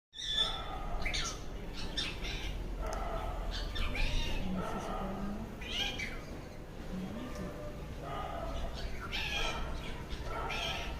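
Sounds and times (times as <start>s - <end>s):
wavering animal cries: 8.8s - 10.9s.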